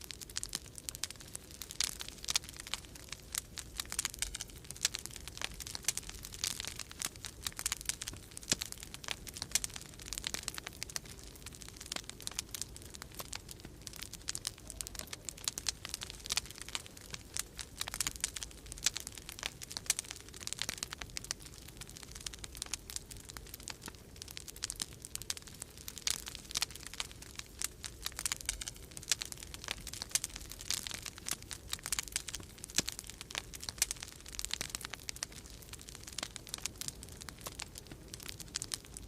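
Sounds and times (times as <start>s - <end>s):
wood fire crackling: 0.0s - 39.0s.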